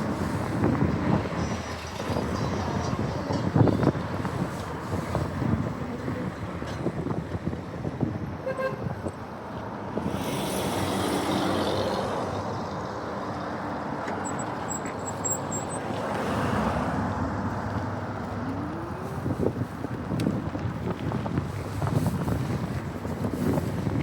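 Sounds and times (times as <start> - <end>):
vehicles passing with low rumble: 0.0 - 24.0
car horn toot: 8.4 - 9.0.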